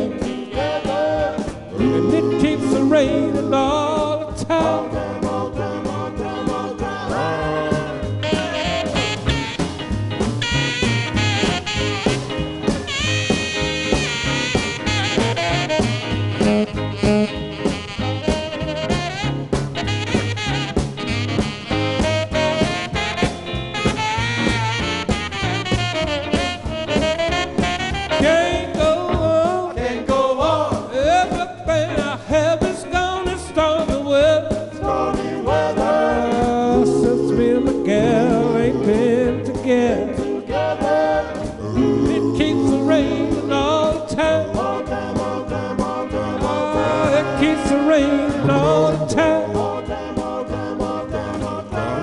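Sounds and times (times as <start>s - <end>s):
vocal group singing in harmony: 0.0s - 9.2s, 28.1s - 31.4s, 34.2s - 52.0s
band accompanying: 0.0s - 52.0s.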